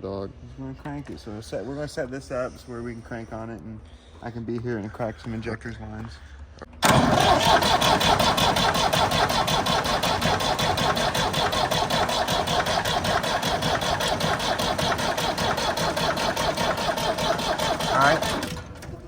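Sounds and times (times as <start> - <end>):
tractor engine cranking: 6.7 - 19.0.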